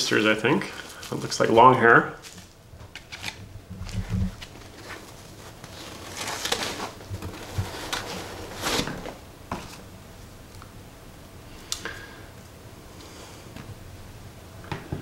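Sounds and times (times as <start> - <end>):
packaging rustling: 0.8 - 1.5, 2.2 - 9.9.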